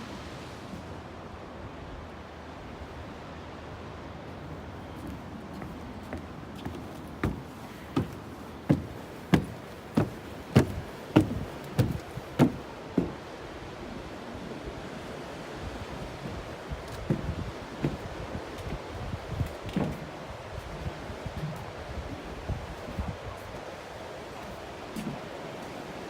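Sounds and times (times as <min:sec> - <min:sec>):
wind: 0:00.0 - 0:26.0
footsteps walking: 0:05.0 - 0:13.2.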